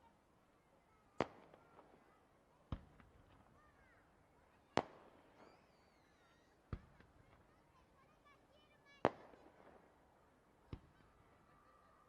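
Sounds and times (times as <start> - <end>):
faint fireworks pops: 1.1 - 4.0, 4.7 - 7.8, 9.0 - 10.0, 10.6 - 11.3.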